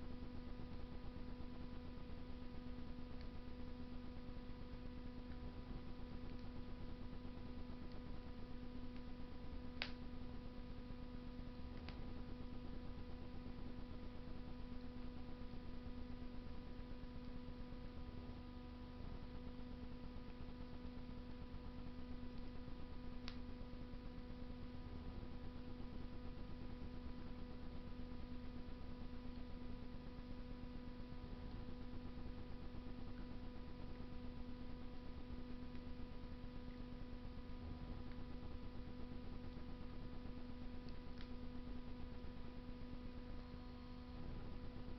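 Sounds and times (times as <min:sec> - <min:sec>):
electrical hum: 0:00.0 - 0:44.9.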